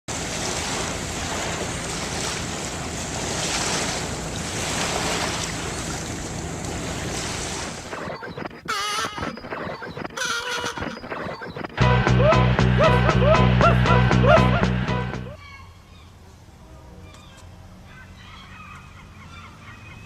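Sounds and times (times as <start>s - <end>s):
sea surf washing: 0.1s - 8.1s.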